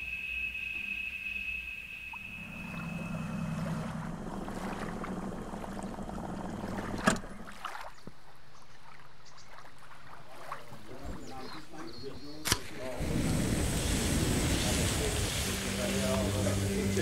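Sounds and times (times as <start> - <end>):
water washing along hull: 2.1 - 12.0, 12.8 - 17.0
outboard motor running: 2.2 - 7.9, 13.0 - 17.0.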